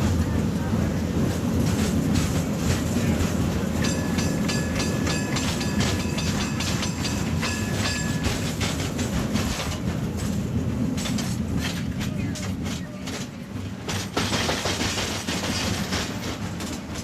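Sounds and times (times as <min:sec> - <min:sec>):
train rumbling on track: 0:00.0 - 0:17.0
wheels clicking over rail joints: 0:01.2 - 0:17.0.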